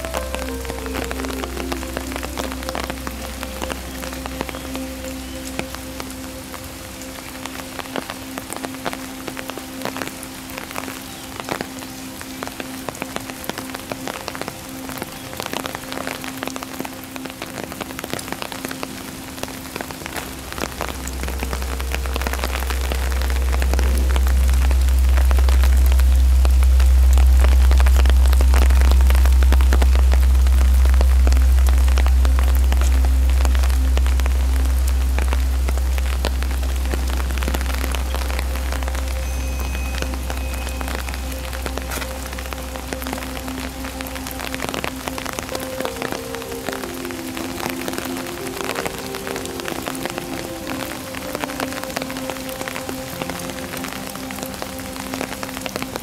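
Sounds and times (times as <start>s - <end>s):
raindrops ticking close by: 0.0s - 56.0s
steady rain falling: 0.0s - 56.0s
deep low rumble: 20.2s - 45.6s.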